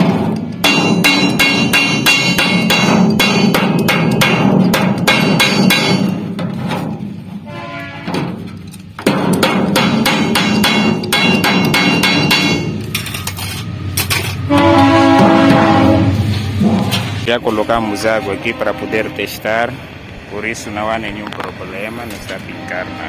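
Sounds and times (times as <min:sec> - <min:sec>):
hammer striking sheet metal: 0:00.0 - 0:17.3.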